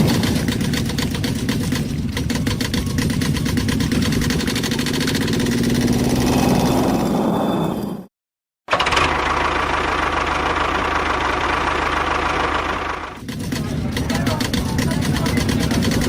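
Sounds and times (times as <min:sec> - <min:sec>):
rapid even ticking: 0:00.0 - 0:06.2, 0:13.2 - 0:16.0
small engine running: 0:00.0 - 0:07.1, 0:08.7 - 0:16.0.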